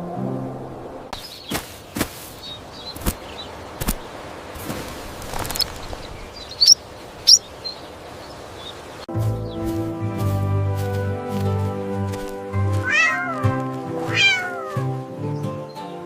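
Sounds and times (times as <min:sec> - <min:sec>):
high bird chirps: 0:05.3 - 0:09.0
cat meowing: 0:12.8 - 0:15.0.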